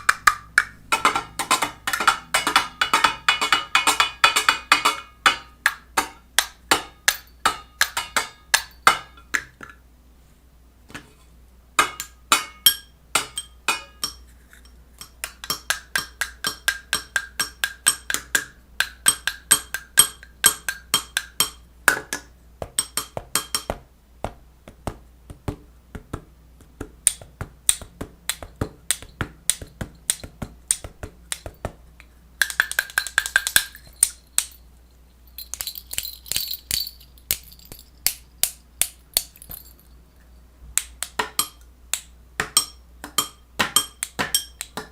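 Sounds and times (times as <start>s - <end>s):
sharp taps: 15.0s - 34.6s.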